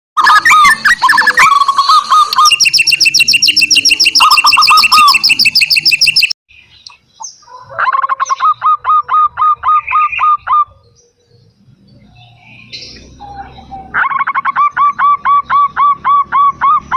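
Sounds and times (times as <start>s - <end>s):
high-pitched chattering bird trill: 0.2s - 11.0s, 12.6s - 16.9s
dove cooing: 3.1s - 6.0s, 7.5s - 16.9s.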